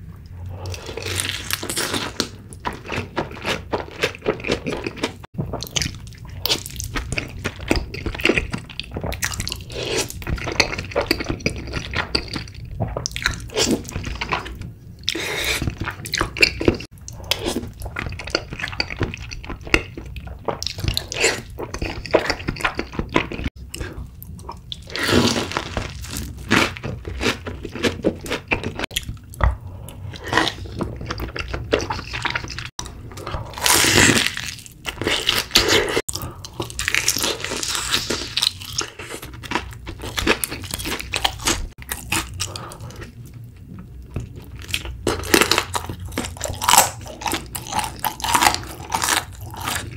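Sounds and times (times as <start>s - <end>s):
chewing and slurping food: 0.6s - 49.9s.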